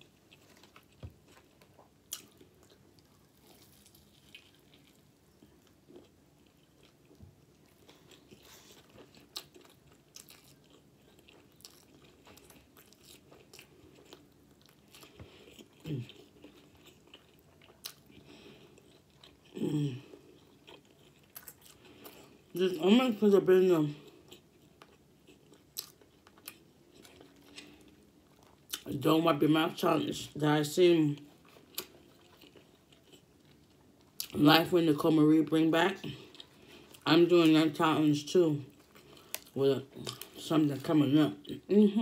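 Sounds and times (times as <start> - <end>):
person chewing and lip-smacking: 0.2 - 22.4, 24.2 - 28.9, 31.4 - 34.4.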